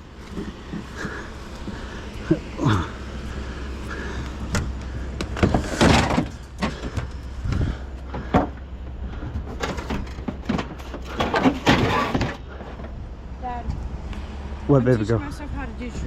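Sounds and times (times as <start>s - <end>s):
metal scraping rattle: 0.0s - 13.0s
low hum: 0.0s - 16.0s
metal knocks and clanks: 3.9s - 13.0s.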